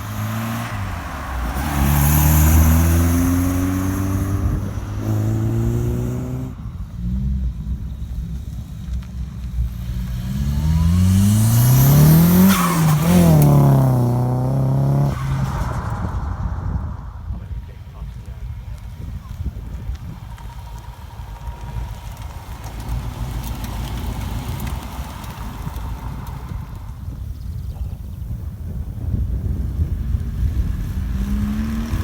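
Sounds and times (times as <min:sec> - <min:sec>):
car engine accelerating: 0:00.0 - 0:32.0.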